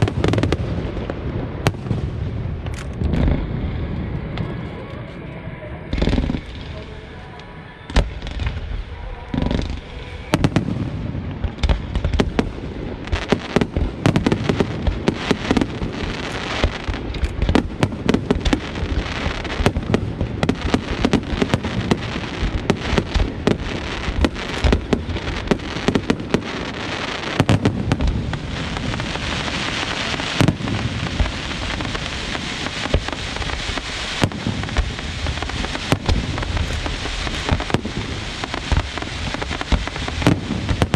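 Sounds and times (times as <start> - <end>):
fireworks bursting with bangs: 0.0 - 5.1, 5.8 - 40.9
steady high hiss: 17.8 - 40.9.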